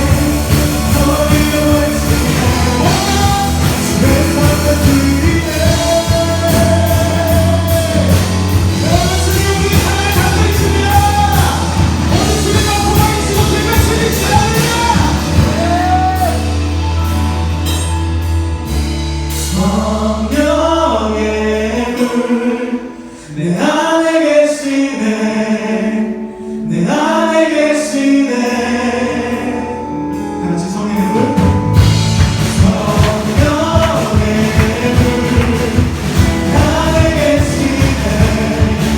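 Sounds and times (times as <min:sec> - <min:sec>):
worship band playing: 0:00.0 - 0:38.9
voices singing in unison: 0:31.0 - 0:38.9.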